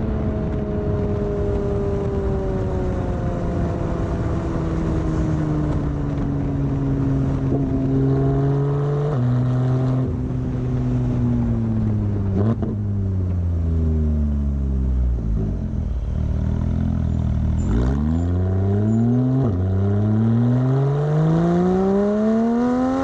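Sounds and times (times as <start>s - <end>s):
sports car engine revs: 17.5s - 23.0s.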